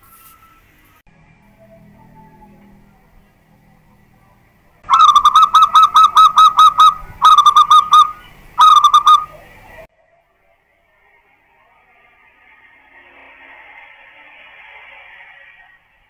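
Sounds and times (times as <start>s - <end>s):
dove cooing: 4.8s - 9.9s.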